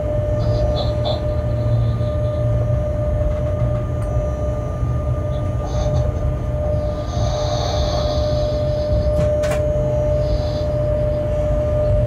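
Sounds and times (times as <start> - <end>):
constant whine: 0.0 - 12.0
train cab rumble: 0.0 - 12.0.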